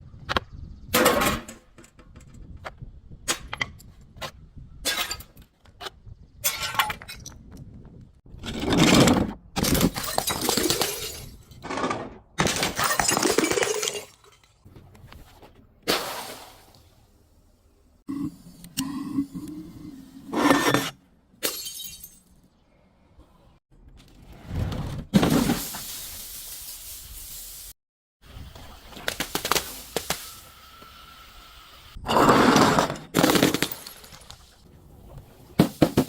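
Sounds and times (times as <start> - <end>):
glass bottles smashing: 9.6 - 11.6, 12.4 - 14.5, 21.4 - 22.4, 33.1 - 34.4.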